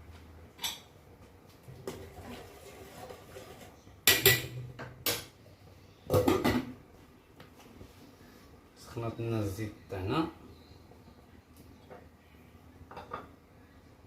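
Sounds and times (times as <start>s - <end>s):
pots and utensils clattering: 1.8s - 5.4s, 6.1s - 6.8s.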